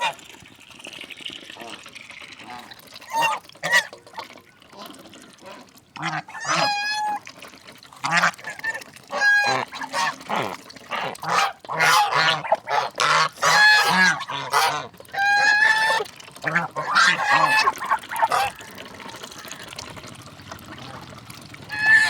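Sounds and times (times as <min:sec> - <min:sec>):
geese honking: 0:09.1 - 0:19.7, 0:20.8 - 0:22.0.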